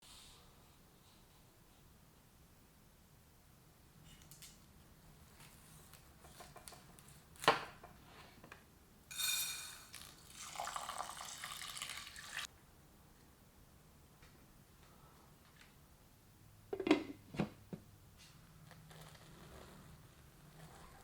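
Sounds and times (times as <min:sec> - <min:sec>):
tap water running into a pot: 0:09.1 - 0:12.5.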